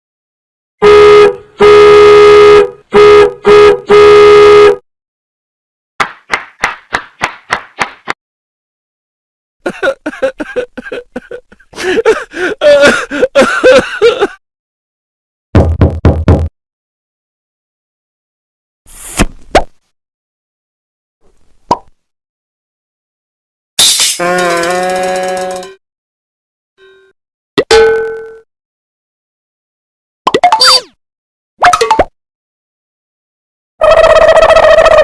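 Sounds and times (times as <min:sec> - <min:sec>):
comedy horn honking: 0:00.8 - 0:04.8, 0:23.9 - 0:25.8.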